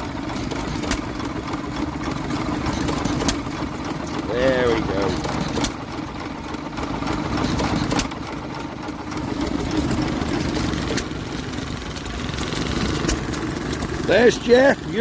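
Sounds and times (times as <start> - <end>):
stationary engines running: 0.0 - 15.0.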